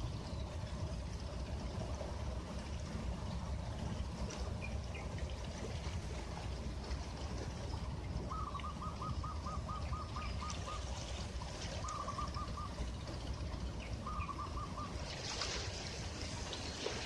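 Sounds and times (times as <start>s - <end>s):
bird calling repeated notes: 8.2s - 11.0s, 11.8s - 13.0s, 13.8s - 15.0s.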